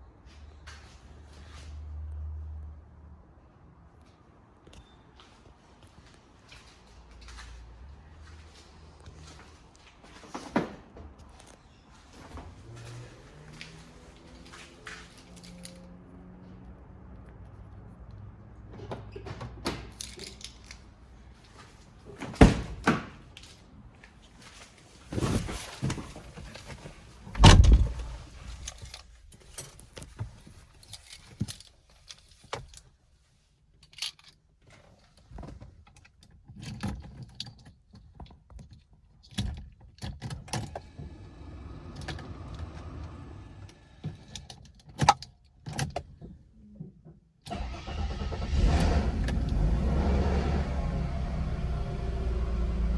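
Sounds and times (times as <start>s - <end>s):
keys jangling: 14.5s - 15.8s, 19.9s - 20.8s
knocks clicks and thuds: 25.2s - 28.9s.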